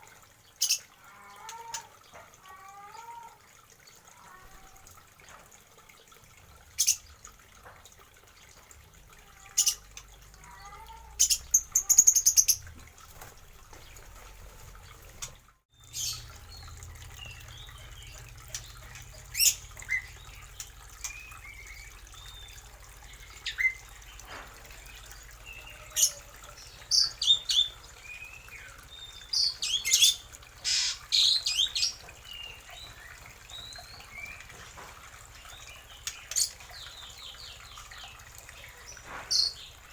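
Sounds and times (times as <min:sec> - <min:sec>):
birds calling: 0:13.7 - 0:39.9.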